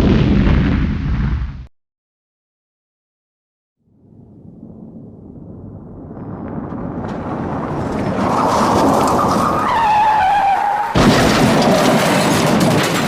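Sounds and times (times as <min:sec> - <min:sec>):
vehicle rushing noise: 0:04.5 - 0:13.0.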